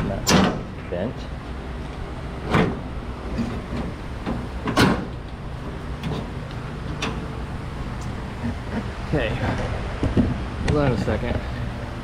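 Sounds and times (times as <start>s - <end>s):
metal knocks and clicks: 0.0s - 0.7s, 2.5s - 7.3s
steady low hum: 0.0s - 12.0s.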